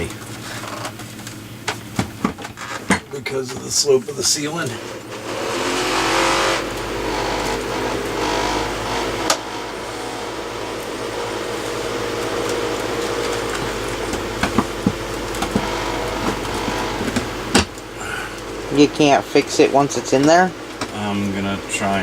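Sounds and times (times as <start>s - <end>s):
steady mechanical hum: 0.0s - 22.0s
sharp knocks: 13.0s - 17.8s.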